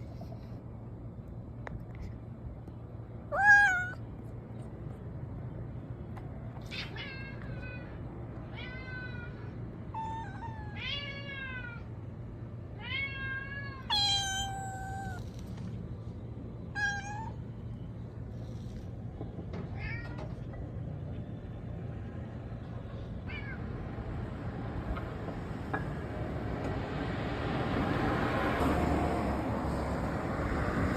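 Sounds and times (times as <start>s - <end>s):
cat meowing: 3.3s - 4.0s, 6.6s - 11.9s, 12.8s - 15.4s, 16.7s - 17.4s.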